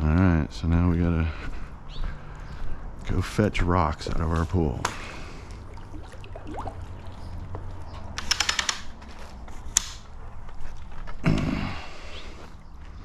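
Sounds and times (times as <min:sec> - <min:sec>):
low steady hum: 0:00.0 - 0:08.2
rattle of sharp clicks: 0:08.1 - 0:09.0.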